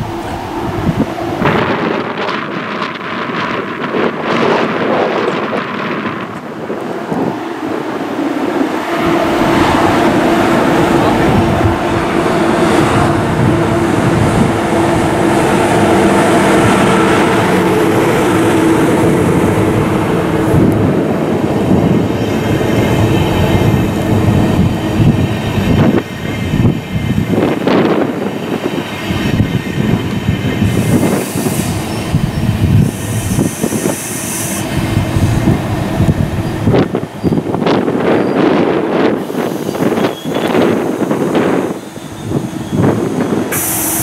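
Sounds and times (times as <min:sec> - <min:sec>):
train drive whine: 0:00.0 - 0:44.0
wheels rumbling and squealing on rails: 0:00.0 - 0:44.0
short hisses: 0:43.5 - 0:44.0.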